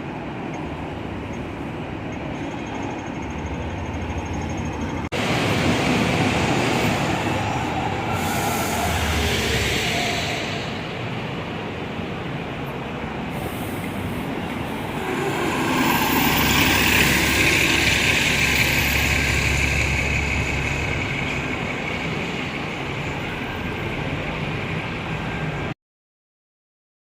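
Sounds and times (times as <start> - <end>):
heavy vehicle passing: 13.7 - 22.9.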